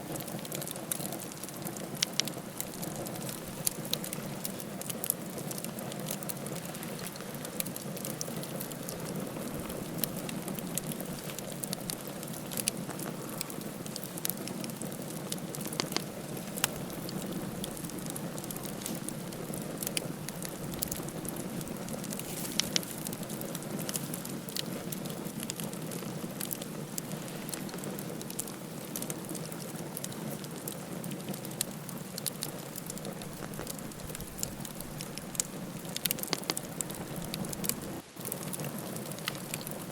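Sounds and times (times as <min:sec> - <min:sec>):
flames hissing: 0:00.0 - 0:39.9
wood crackling and popping: 0:00.0 - 0:39.9.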